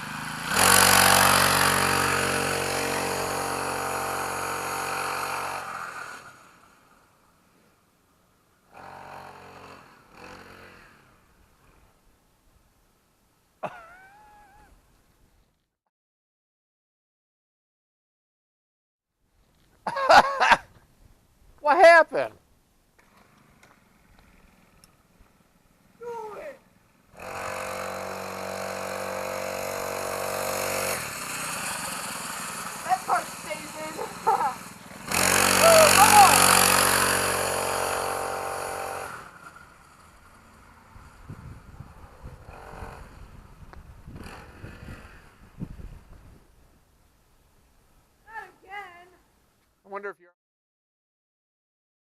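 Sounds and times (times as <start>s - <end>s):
small dirt bike engine revving: 0.0s - 7.1s, 8.7s - 12.0s, 26.2s - 45.8s.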